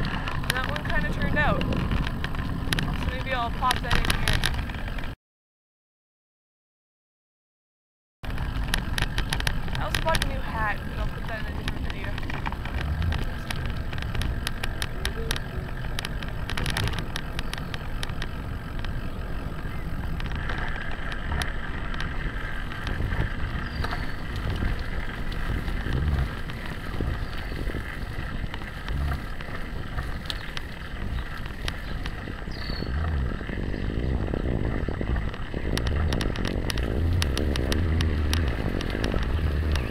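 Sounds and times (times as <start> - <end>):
bicycle tyre road noise: 0.0 - 5.2, 8.2 - 39.9
wind rumble on microphone: 0.0 - 5.2, 8.2 - 39.9
camera mount rattling: 11.6 - 19.0.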